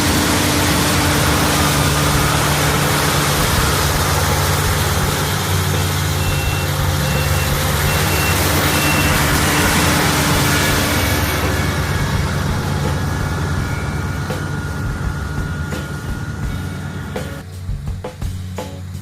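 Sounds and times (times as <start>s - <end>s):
heavy engine running: 0.0s - 19.0s
reversing alarm beeps: 4.5s - 17.3s.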